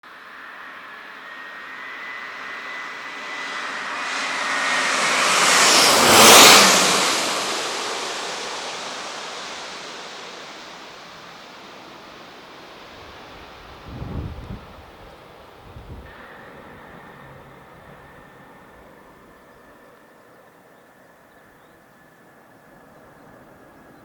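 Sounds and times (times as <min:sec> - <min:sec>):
jet airliner passing overhead: 0:00.1 - 0:24.0
thin high whine: 0:00.1 - 0:24.0.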